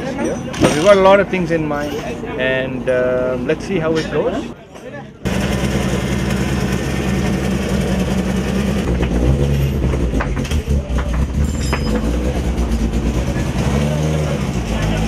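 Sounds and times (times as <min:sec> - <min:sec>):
road noise: 0:00.0 - 0:15.0
rally car engine running hard: 0:05.3 - 0:15.0.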